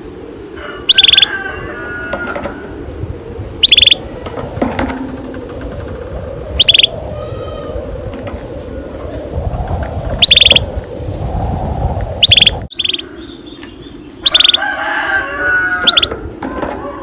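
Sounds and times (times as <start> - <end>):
canary singing trills: 0.9 - 1.3, 3.6 - 4.1, 6.6 - 7.7, 10.2 - 11.2, 12.2 - 14.7, 15.7 - 16.1.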